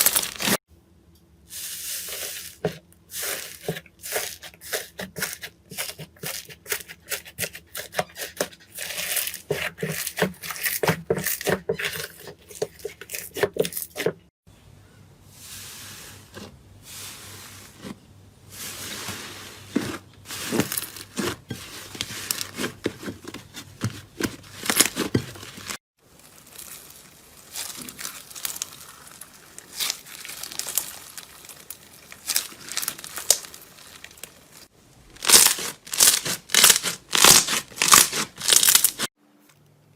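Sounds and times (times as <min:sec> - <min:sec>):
slime crackling and popping: 0:26.1 - 0:39.0.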